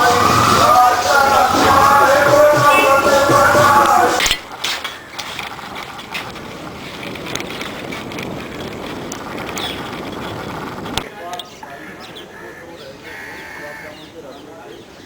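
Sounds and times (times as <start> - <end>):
people singing: 0.0 - 4.4
wind noise on microphone: 0.0 - 11.6
bicycle clicks and rattles: 4.2 - 11.5.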